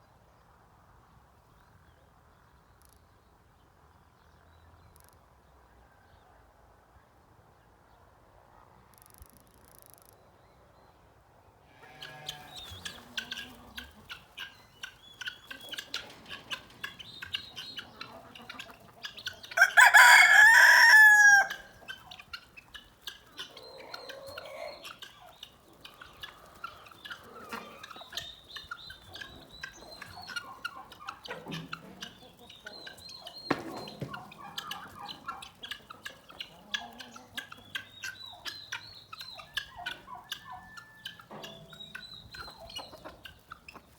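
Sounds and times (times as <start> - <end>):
chickens clucking: 11.7 - 43.9
small birds chirping: 11.9 - 19.6, 21.6 - 43.9
rooster crowing: 19.5 - 21.8, 40.3 - 41.2.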